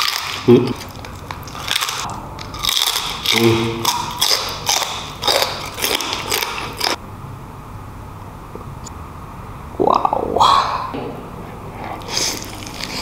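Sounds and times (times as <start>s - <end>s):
wet chewing and lip-smacking: 0.0s - 7.0s
person humming mm: 3.3s - 3.8s.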